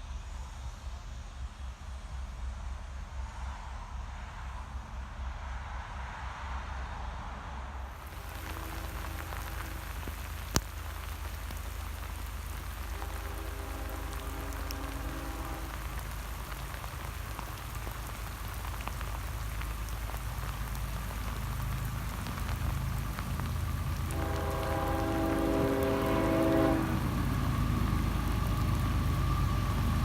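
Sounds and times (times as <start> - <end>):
rain hiss: 0.0 - 30.0
distant locomotive horn: 8.1 - 30.0.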